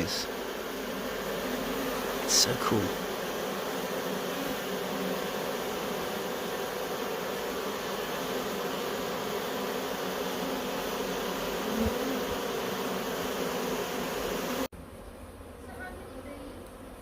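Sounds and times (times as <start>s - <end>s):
bee swarm buzzing: 0.0s - 17.0s.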